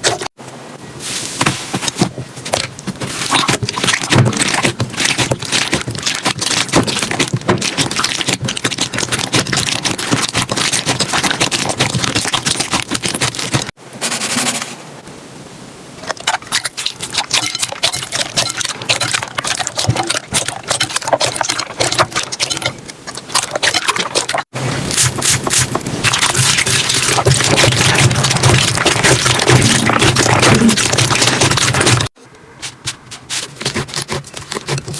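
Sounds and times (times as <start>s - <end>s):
slime crackling and popping: 3.2s - 13.7s, 24.9s - 32.2s.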